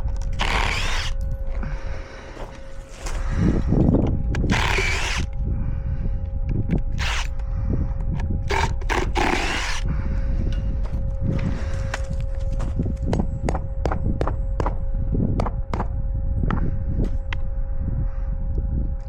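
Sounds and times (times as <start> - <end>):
wind rumbling on microphone: 0.0 - 19.0
power drill running: 0.3 - 1.2, 4.5 - 5.3, 7.0 - 7.3, 8.5 - 9.8.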